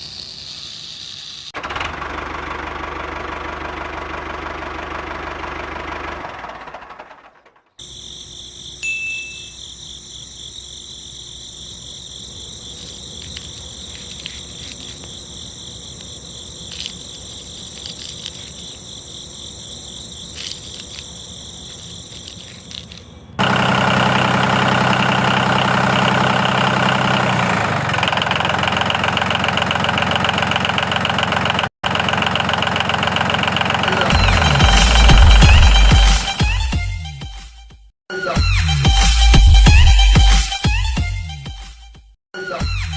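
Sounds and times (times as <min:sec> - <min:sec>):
small electric motor whining: 0:00.0 - 0:01.6
loud buzzing rattle: 0:00.0 - 0:03.0, 0:16.5 - 0:18.8, 0:22.1 - 0:27.2.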